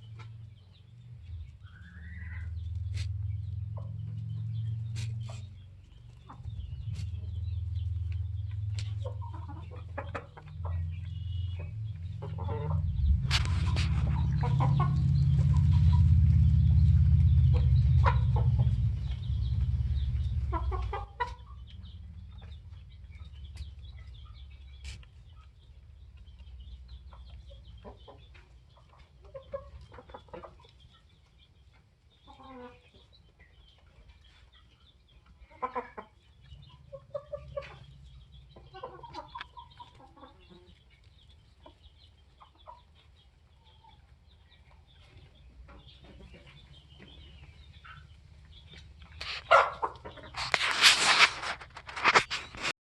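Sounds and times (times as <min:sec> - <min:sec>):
low rumble: 0:00.0 - 0:24.8
hens clucking: 0:00.0 - 0:52.7.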